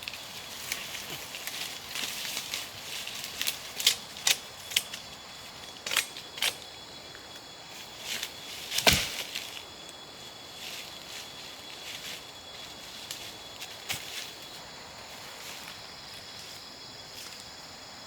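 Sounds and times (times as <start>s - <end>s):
dry wood snapping: 3.2s - 5.1s, 5.8s - 6.6s, 8.7s - 9.3s.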